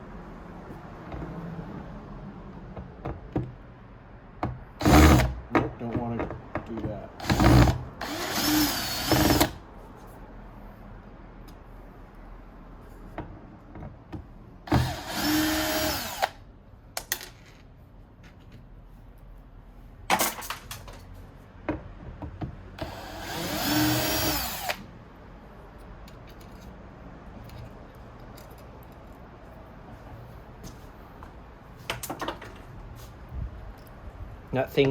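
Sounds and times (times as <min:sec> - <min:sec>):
electric screwdriver whirring: 0:07.2 - 0:09.6, 0:14.7 - 0:16.4, 0:22.8 - 0:24.8
sharp clicks of parts and tools: 0:16.9 - 0:18.6, 0:25.8 - 0:29.3.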